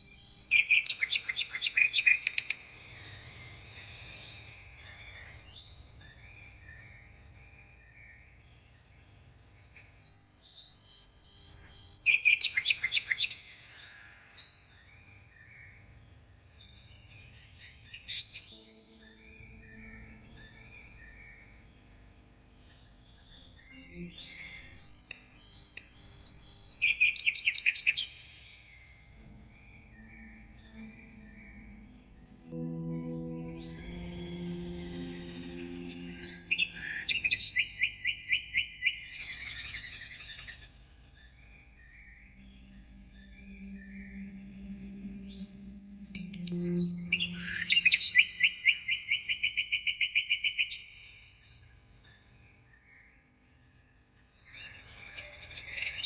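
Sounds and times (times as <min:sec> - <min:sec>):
low steady background tone: 0:00.0 - 0:56.0
soft background music: 0:18.3 - 0:21.5, 0:23.2 - 0:25.6, 0:29.1 - 0:37.8, 0:41.8 - 0:48.8
songbird trilling: 0:41.9 - 0:50.9.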